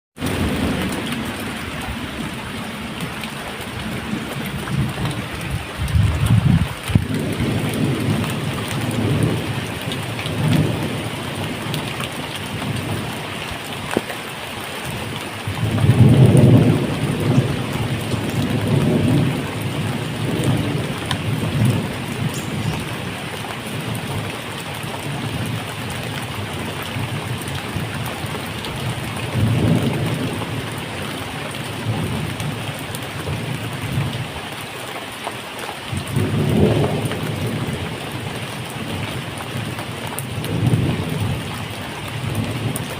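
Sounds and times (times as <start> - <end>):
thunder rolling: 0.2 - 13.2, 15.5 - 24.3, 36.1 - 39.7
steady rain falling: 0.2 - 42.9.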